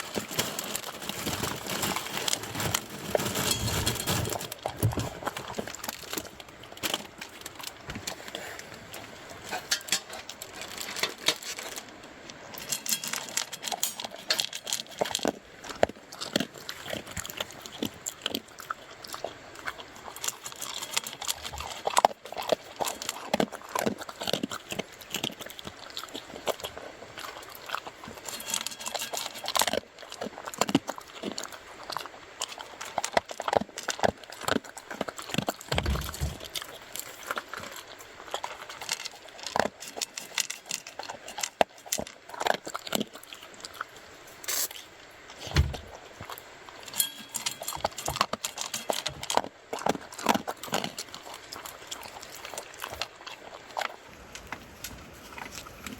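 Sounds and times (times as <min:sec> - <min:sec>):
crunchy chewing: 0:00.0 - 0:55.9
low thump: 0:45.5 - 0:45.9.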